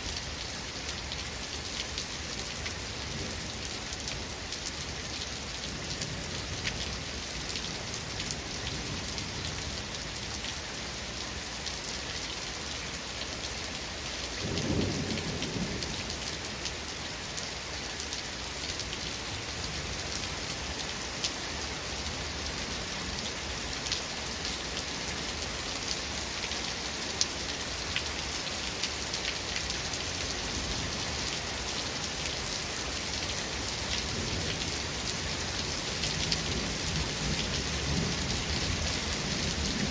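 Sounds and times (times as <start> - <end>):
heavy rain pattering: 13.2 - 39.9
low rumble of thunder: 14.4 - 16.4, 34.1 - 39.9.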